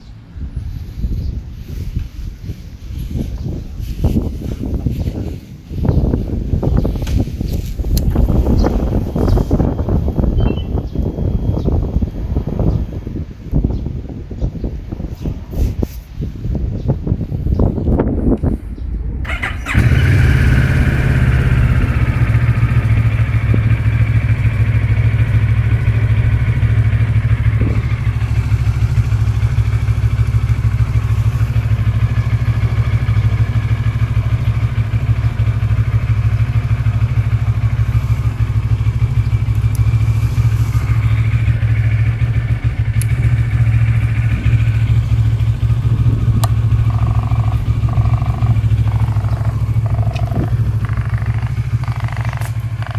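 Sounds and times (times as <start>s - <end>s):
motorcycle engine idling: 16.7s - 52.9s.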